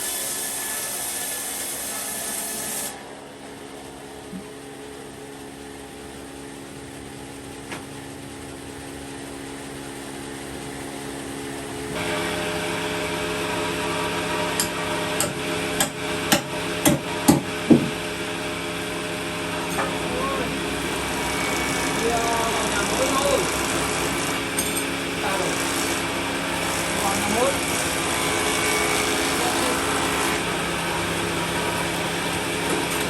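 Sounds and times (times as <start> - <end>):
workshop machinery drone: 0.0 - 33.0
sharp knocks: 15.2 - 18.0.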